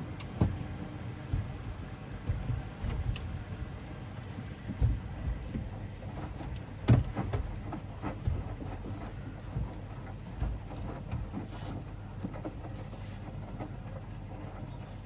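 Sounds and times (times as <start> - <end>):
washing machine drum tumbling: 0.0 - 11.3
soft thumps: 0.4 - 9.8.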